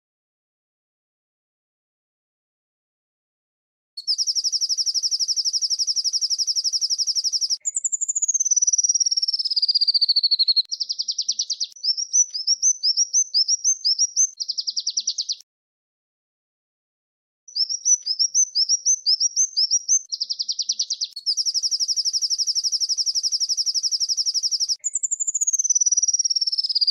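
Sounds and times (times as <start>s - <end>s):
songbird trilling: 4.0s - 15.4s, 17.5s - 26.9s.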